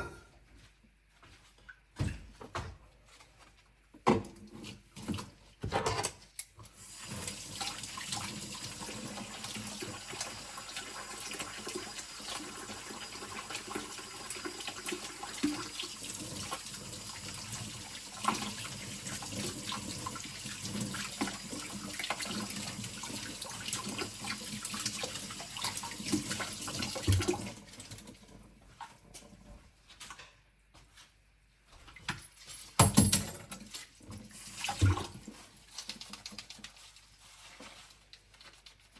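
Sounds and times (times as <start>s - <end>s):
tap water splashing in sink: 7.0s - 29.0s, 32.9s - 36.8s.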